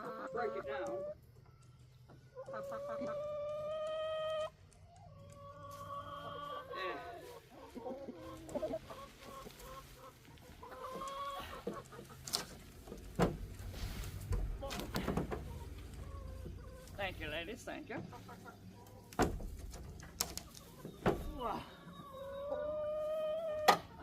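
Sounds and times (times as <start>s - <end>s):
chickens calling: 0.0s - 24.0s
sharp clicks: 4.6s - 5.5s.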